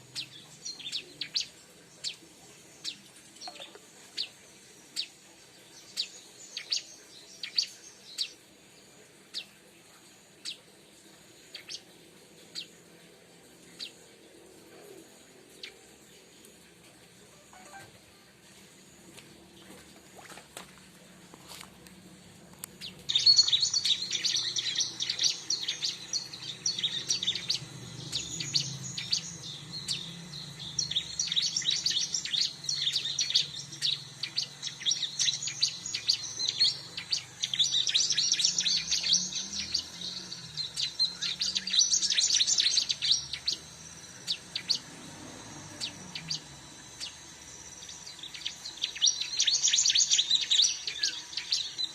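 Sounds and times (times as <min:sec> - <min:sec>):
bird chattering chirps: 0:22.8 - 0:44.9, 0:45.7 - 0:51.9.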